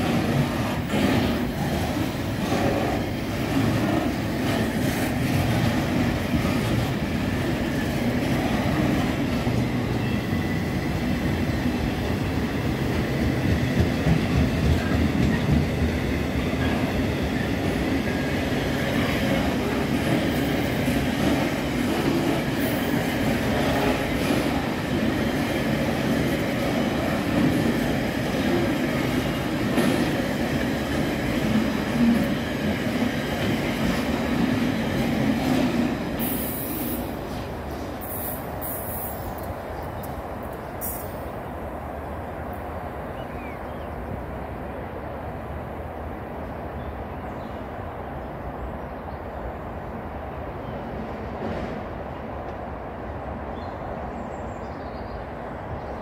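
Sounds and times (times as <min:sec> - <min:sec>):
freight wagons rumbling on rails: 0:00.0 - 0:41.6.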